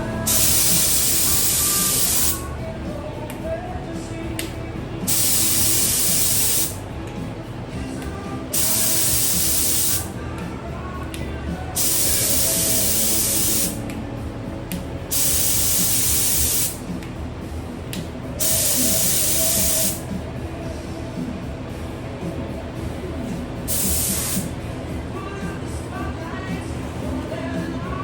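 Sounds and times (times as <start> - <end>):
paint spray gun spraying: 0.2 - 2.4, 5.1 - 6.8, 8.5 - 10.2, 11.8 - 13.8, 15.1 - 16.8, 18.4 - 20.0, 23.7 - 24.5.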